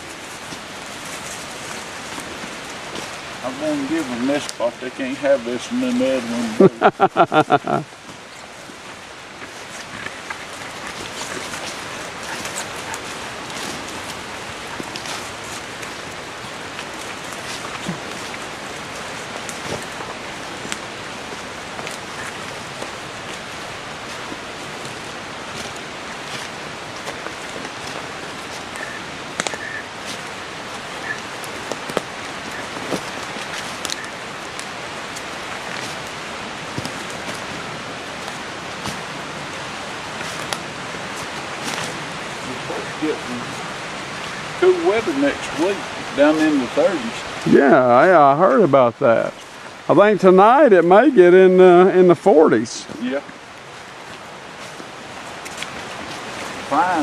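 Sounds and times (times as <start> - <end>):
light rain on leaves: 0.0 - 57.0
footsteps on leaf litter: 9.4 - 45.8.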